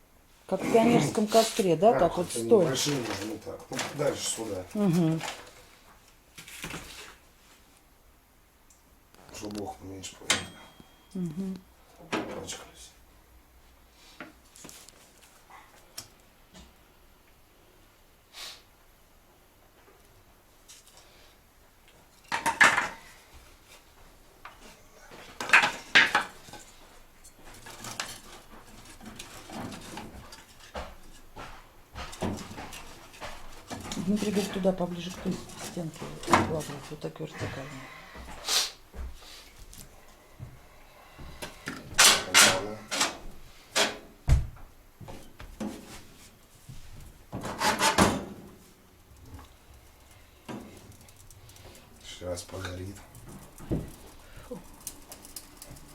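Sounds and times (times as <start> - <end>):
firewood logs knocking and scraping: 27.3 - 37.6, 50.4 - 55.9.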